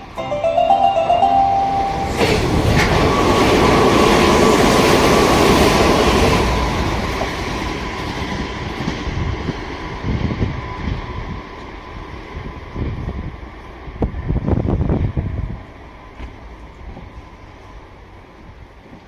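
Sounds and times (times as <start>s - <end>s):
chime melody: 0.0s - 3.7s
train passing at speed: 0.0s - 19.0s.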